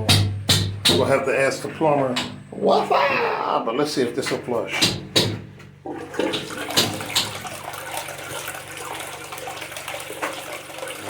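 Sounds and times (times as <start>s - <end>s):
toilet water rushing: 5.8s - 11.0s.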